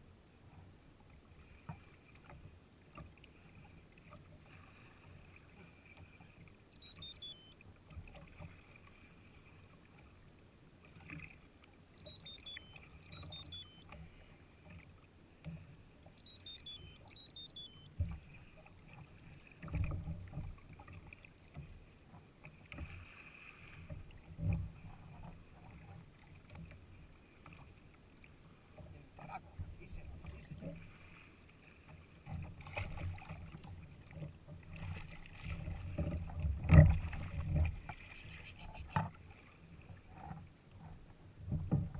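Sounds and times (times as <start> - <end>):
kayak on water low rumble: 0.0 - 41.9
high falling chirps: 6.8 - 7.5, 12.0 - 13.8, 16.2 - 17.9.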